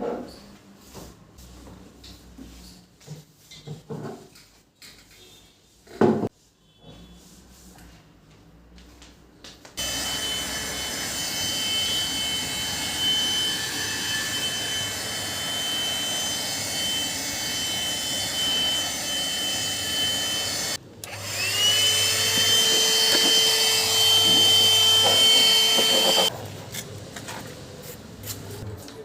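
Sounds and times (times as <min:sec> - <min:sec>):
handheld vacuum motor whining: 0:09.8 - 0:26.3.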